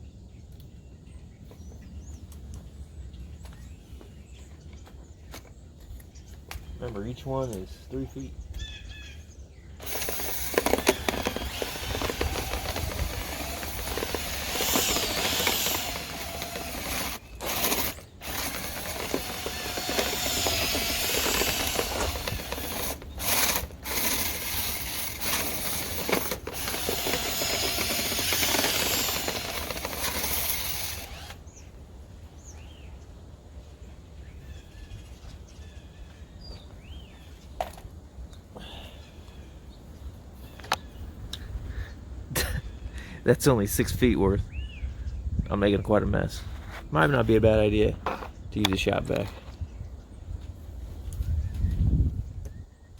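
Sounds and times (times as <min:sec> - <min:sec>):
power drill spinning brush in duct: 0:09.8 - 0:31.4.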